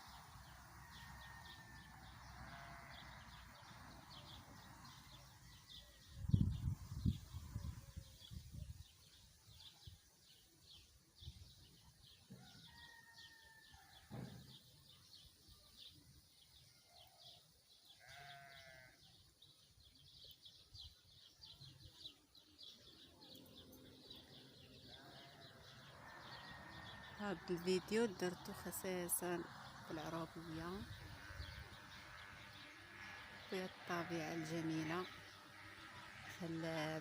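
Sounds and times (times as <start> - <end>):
farm animal bleating: 2.3 - 4.3, 17.8 - 19.3, 24.1 - 28.6, 29.4 - 37.0.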